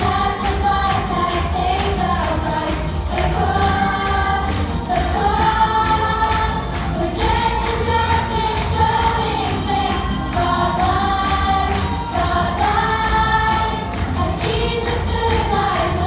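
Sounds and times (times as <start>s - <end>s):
group of voices singing: 0.0s - 16.0s
steady low accompaniment: 0.0s - 16.0s.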